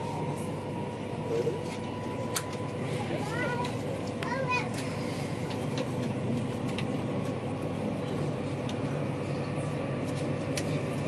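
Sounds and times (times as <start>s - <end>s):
passenger train rumbling: 0.0s - 11.0s.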